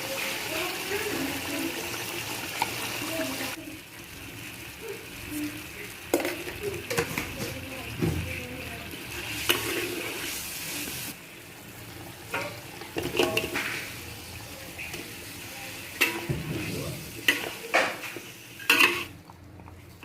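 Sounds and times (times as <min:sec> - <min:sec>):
food sizzling in a pan: 0:00.0 - 0:19.2
utensil scraping and clinking on pan: 0:12.3 - 0:13.9, 0:16.0 - 0:19.2.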